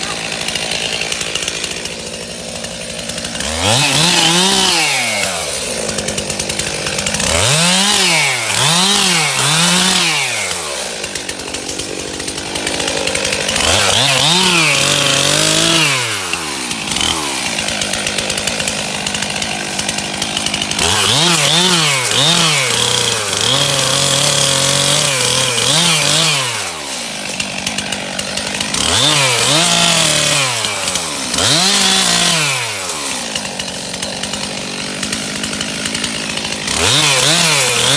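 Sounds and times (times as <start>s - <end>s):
chainsaw cutting wood: 0.0s - 37.9s.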